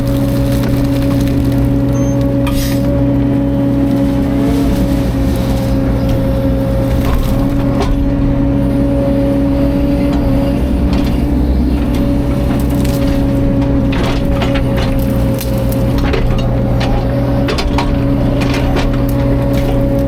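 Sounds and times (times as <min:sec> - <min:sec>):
sharp cracks and crunches: 0:00.0 - 0:03.0, 0:11.9 - 0:20.0
diesel excavator engine running: 0:00.0 - 0:20.0.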